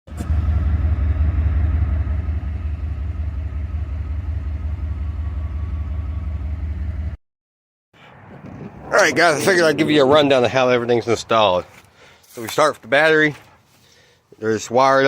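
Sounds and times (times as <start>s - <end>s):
truck engine idling: 0.1s - 7.2s.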